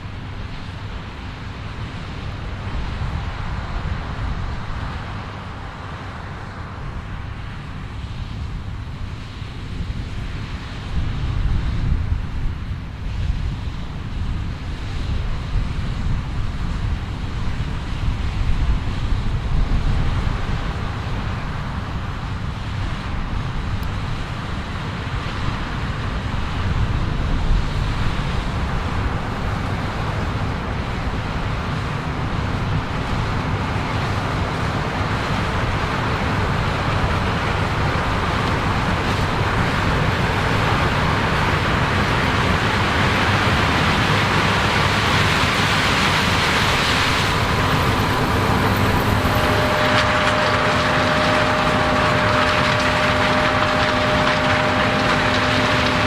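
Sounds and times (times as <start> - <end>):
diesel farm machinery running: 0.0 - 56.0
mechanical whine: 32.4 - 56.0.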